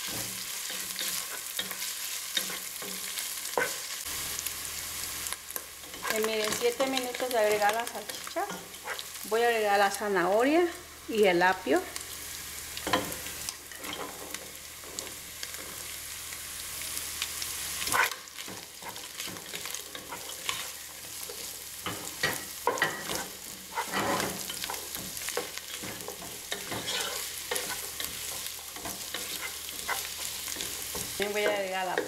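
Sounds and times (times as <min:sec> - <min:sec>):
sausage sizzling in a pot: 0:00.0 - 0:32.0
wooden spoon scraping a pot: 0:18.8 - 0:31.7.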